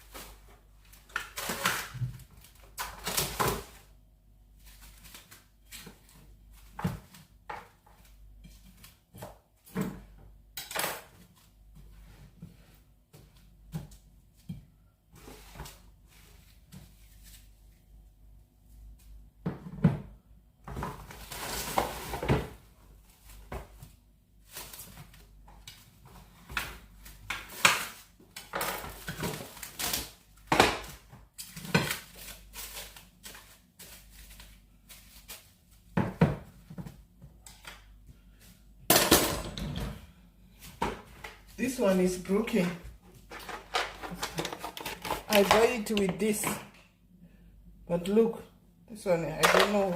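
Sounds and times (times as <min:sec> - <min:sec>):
scraping on a counter: 0:43.3 - 0:45.6.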